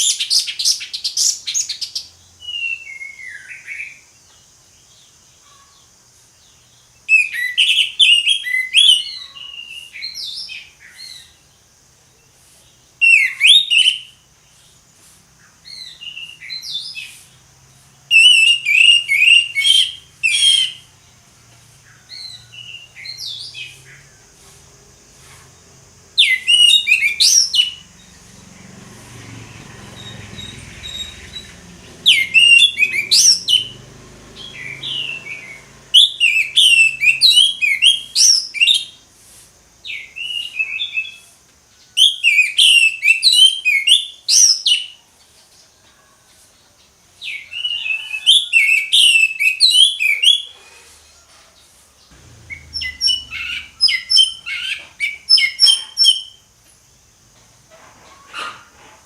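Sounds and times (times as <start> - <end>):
thrush singing whistled notes: 0.0 - 4.2, 7.0 - 11.5, 12.9 - 14.8, 15.4 - 21.2, 21.8 - 24.3, 25.8 - 39.0, 39.8 - 45.0, 47.2 - 50.6, 52.1 - 56.5.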